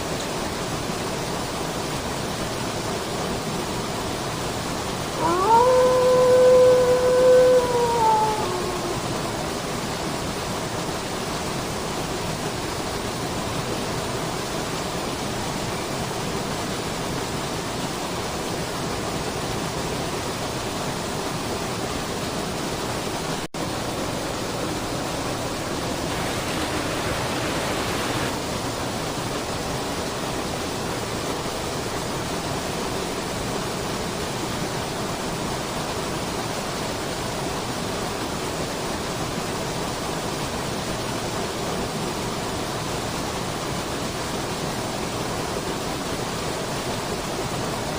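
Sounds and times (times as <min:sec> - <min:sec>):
waterfall rushing: 0:04.9 - 0:14.0, 0:23.6 - 0:28.8.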